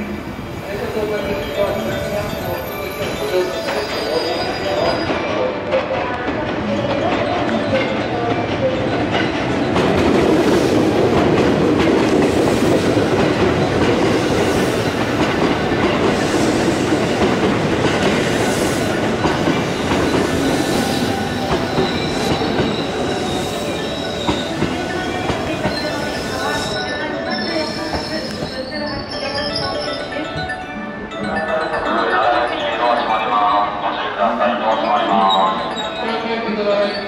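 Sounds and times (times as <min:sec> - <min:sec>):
high wheel squeal: 0:19.6 - 0:30.0.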